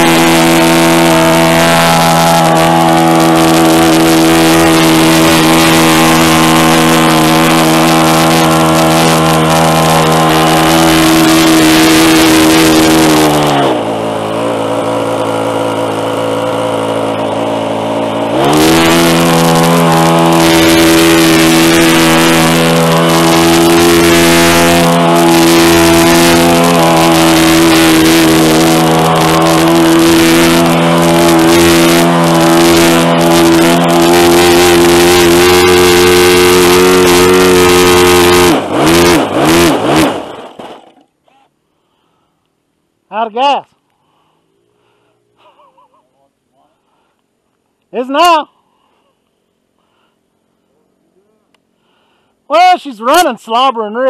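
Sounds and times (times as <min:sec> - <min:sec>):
model airplane engine running: 0:00.0 - 0:39.7.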